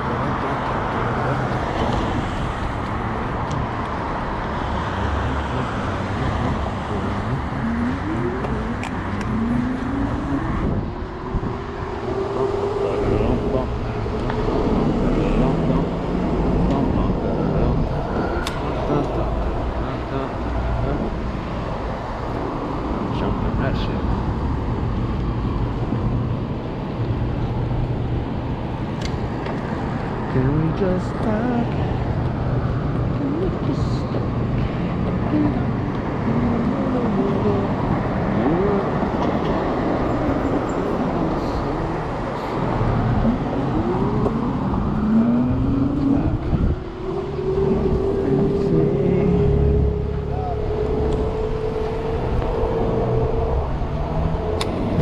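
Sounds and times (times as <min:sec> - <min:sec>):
city traffic noise: 0:00.0 - 0:55.0
wind rushing: 0:06.1 - 0:23.1, 0:41.2 - 0:55.0.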